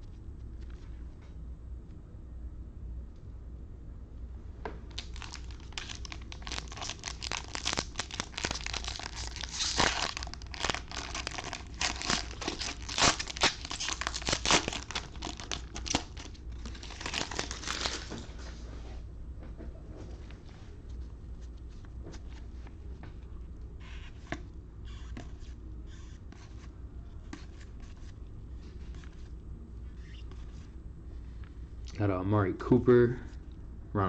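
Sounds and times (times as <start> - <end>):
wrapper being torn and crumpled: 4.9 - 18.1.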